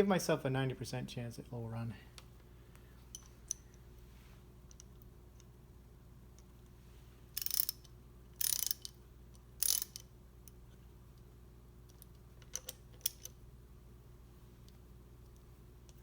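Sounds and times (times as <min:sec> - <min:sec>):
ratchet wrench clicking: 0:07.4 - 0:09.0, 0:09.6 - 0:10.1.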